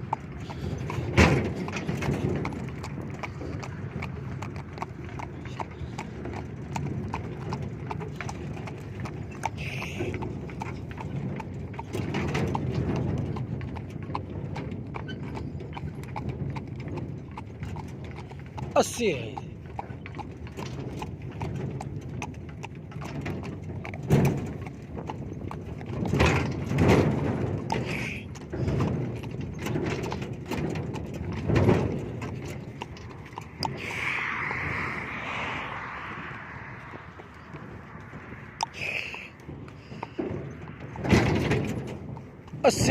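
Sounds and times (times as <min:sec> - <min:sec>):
hooves clip-clopping on hard ground: 0:00.0 - 0:42.9
low rumble: 0:21.6 - 0:42.9.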